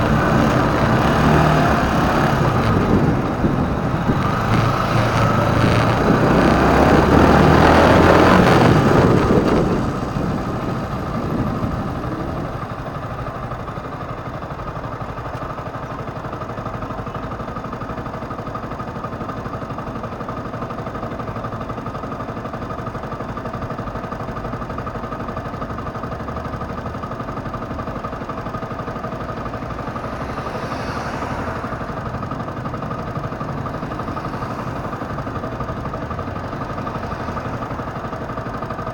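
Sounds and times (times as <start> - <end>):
loud rushing noise: 0.0 - 13.2
motorcycle engine idling: 0.0 - 38.9.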